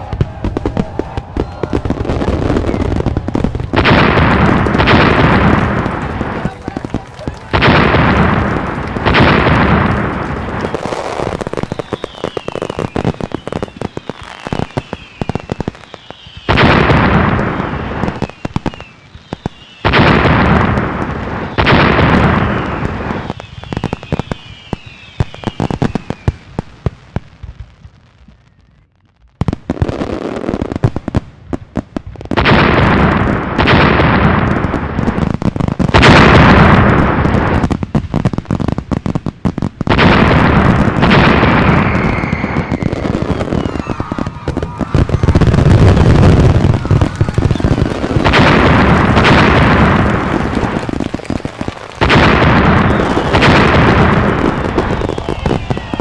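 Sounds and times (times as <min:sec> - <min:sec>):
falling firework whistles: 0:00.0 - 0:05.7, 0:08.9 - 0:26.5, 0:40.0 - 0:56.0
firework crackling: 0:00.0 - 0:56.0.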